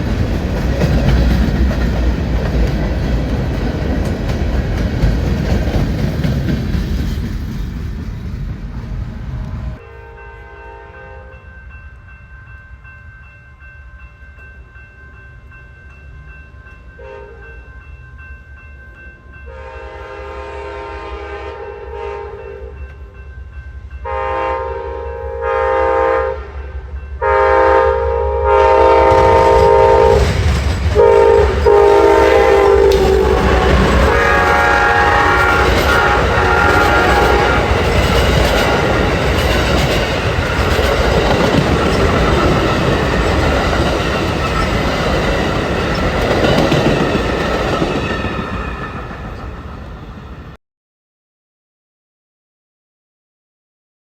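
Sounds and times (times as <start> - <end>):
train passing with wheel noise: 0.0 - 50.6
locomotive horn blasts: 9.8 - 11.5, 19.5 - 22.8, 24.0 - 30.3, 31.0 - 39.4.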